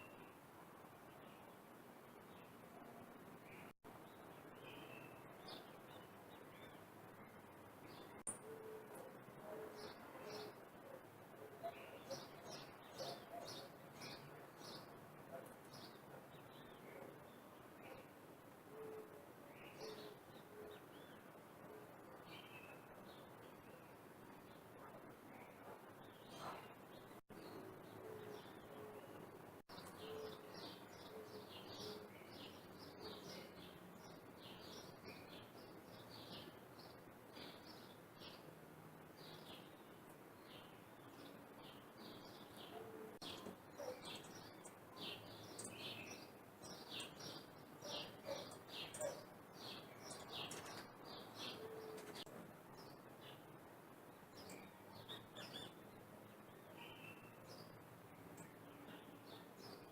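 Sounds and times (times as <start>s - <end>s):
birds chirping: 3.4s - 38.5s, 39.2s - 53.5s.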